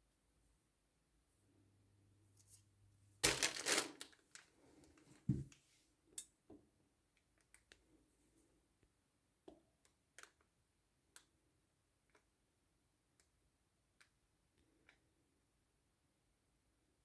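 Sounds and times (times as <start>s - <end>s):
crinkling rustle: 3.2s - 5.6s.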